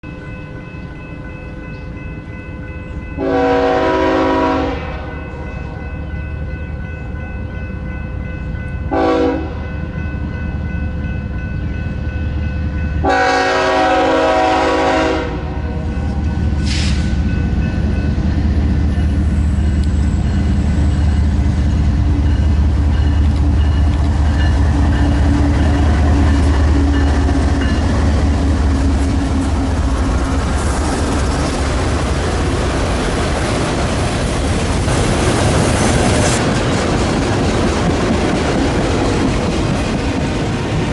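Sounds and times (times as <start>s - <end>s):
low rumble of train: 0.0s - 40.9s
locomotive air horn blasts: 3.2s - 5.4s, 8.9s - 9.7s, 13.0s - 15.8s.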